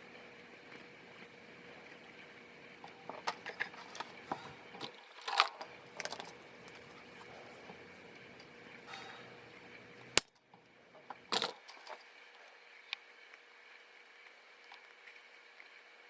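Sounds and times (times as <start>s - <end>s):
faint steady hum: 0.0s - 16.0s
small parts and tools clicking: 2.8s - 6.9s.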